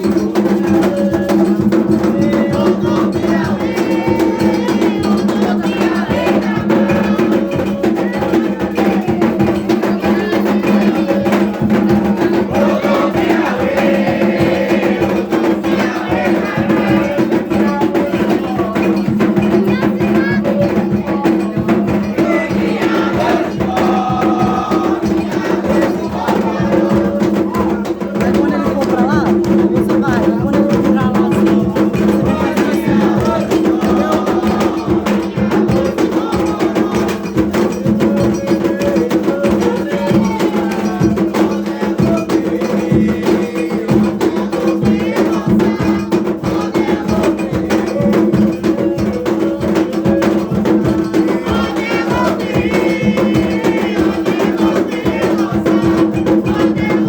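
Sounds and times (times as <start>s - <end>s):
hand drumming: 0.0s - 57.0s
lead drum rapid strokes: 0.0s - 57.0s.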